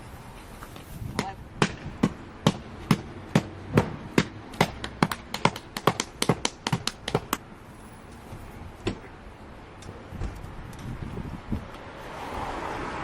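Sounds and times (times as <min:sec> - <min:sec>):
sharp taps: 0:01.2 - 0:07.4.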